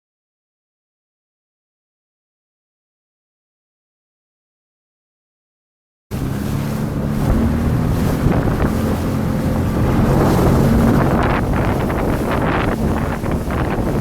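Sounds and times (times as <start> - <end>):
jet ski engine running: 6.1 - 14.0
wind buffeting microphone: 6.1 - 14.0.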